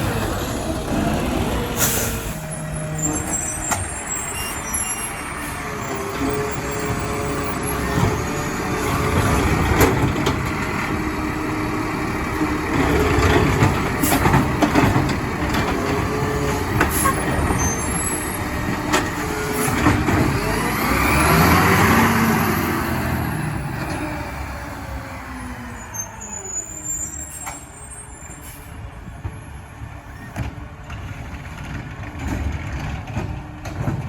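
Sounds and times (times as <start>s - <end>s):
garbage truck engine running: 0.0s - 25.9s.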